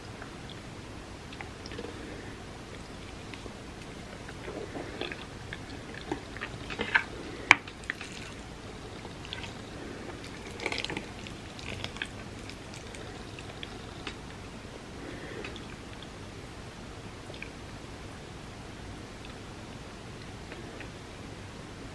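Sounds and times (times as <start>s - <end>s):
wet chewing mouth sounds: 0.1s - 14.4s.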